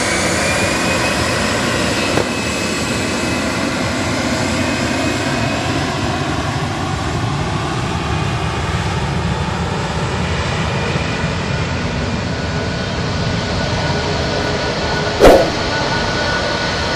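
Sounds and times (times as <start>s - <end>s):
jet engines rushing: 15.2s - 15.7s.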